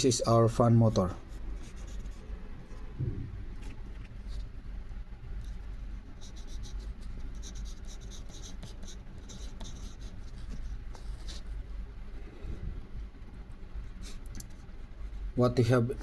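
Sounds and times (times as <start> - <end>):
low room hum: 0.0 - 16.0
pen scratching on paper: 1.2 - 2.3, 5.4 - 11.6.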